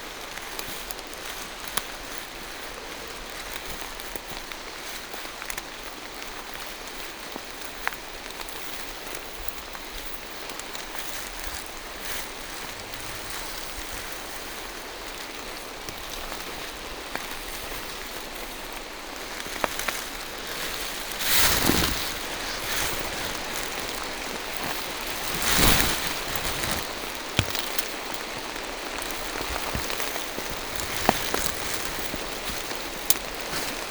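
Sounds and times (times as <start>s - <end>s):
steady rain in a forest: 0.0s - 33.9s.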